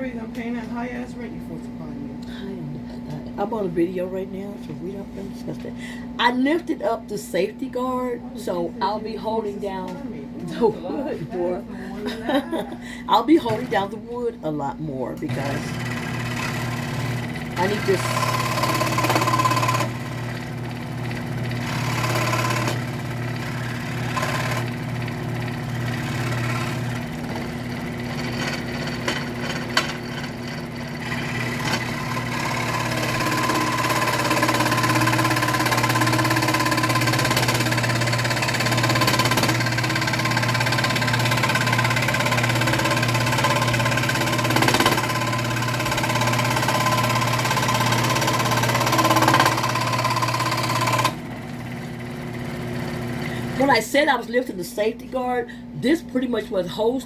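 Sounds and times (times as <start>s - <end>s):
scroll saw cutting wood: 15.3s - 51.2s.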